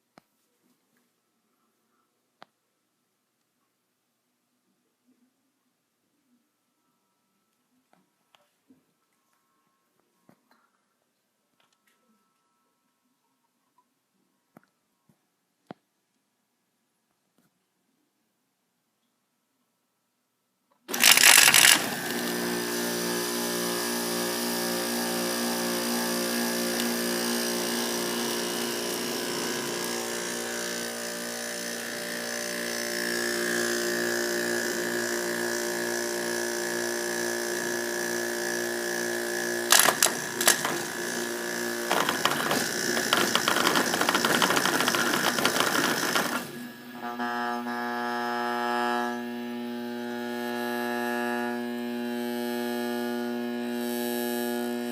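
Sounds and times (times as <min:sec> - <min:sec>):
sharp clicks: 0:20.9 - 0:22.3, 0:39.7 - 0:41.2, 0:41.8 - 0:46.5
compressor pulsing rattle: 0:20.9 - 0:47.0
electrical buzzing hum: 0:20.9 - 0:54.9.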